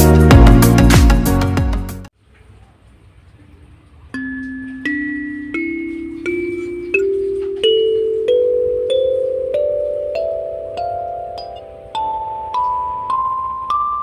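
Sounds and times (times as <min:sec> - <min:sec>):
kalimba notes plucked: 0:04.1 - 0:14.0.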